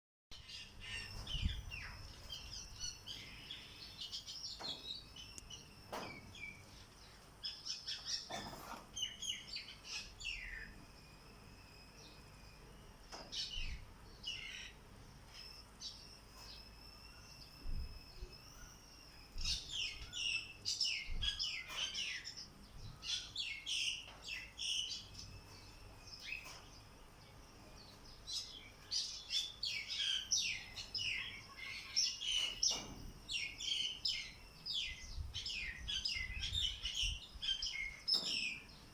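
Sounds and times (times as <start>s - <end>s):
wild birds chirping and singing: 0.4s - 38.9s.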